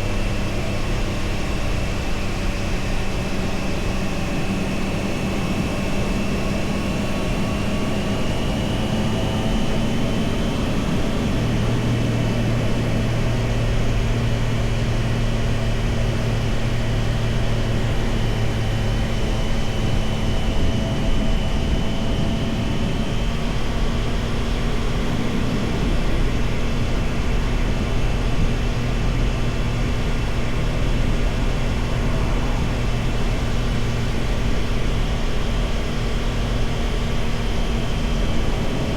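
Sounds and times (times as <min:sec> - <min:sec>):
steady rushing noise: 0:22.6 - 0:38.9.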